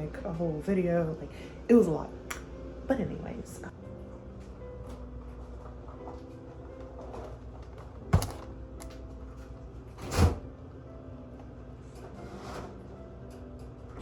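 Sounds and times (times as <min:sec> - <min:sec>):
faint background music: 0:00.0 - 0:14.0.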